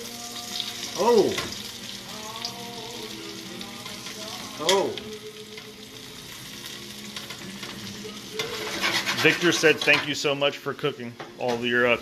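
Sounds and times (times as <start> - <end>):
chicken sizzling in a skillet: 0.0 - 12.0.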